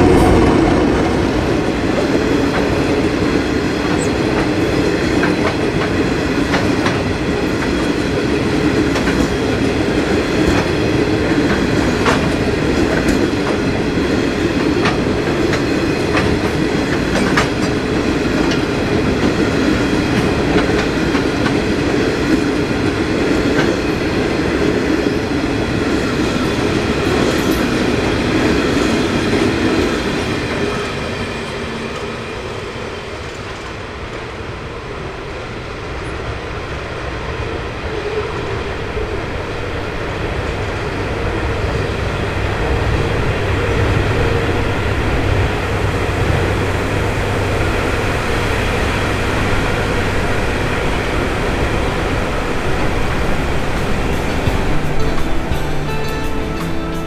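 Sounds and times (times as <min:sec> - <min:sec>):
freight wagons rumbling on rails: 0:00.0 - 0:57.0
wheels clicking over rail joints: 0:03.8 - 0:22.6.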